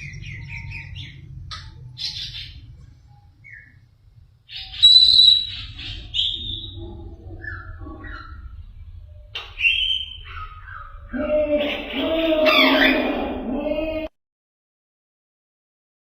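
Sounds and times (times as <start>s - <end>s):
low steady hum: 0.0s - 14.1s
parrot whistled calls: 4.5s - 6.8s, 9.4s - 11.2s.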